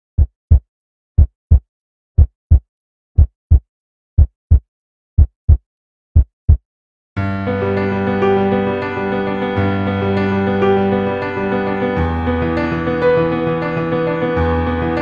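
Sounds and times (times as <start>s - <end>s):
heartbeat thumps: 0.2s - 5.6s, 6.2s - 6.6s.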